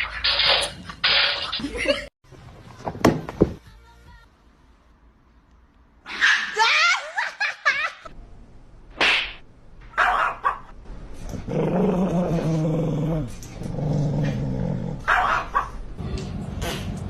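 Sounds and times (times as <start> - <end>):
dog barking: 10.0 - 10.8, 15.1 - 15.8
dog growling: 11.4 - 15.1.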